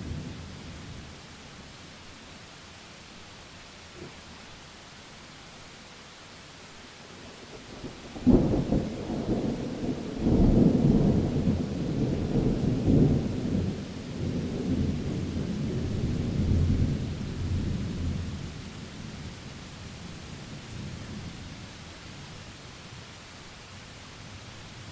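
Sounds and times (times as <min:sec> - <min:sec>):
steady rain: 0:00.0 - 0:24.9
thunder crack and rumble: 0:07.8 - 0:18.4.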